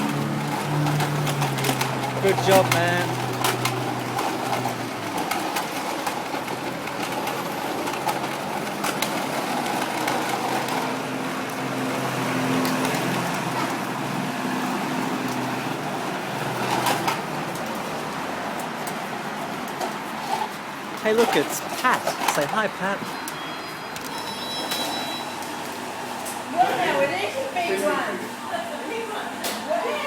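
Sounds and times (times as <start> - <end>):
vehicle engine running: 0.0 - 21.2
high held tone: 23.2 - 25.5.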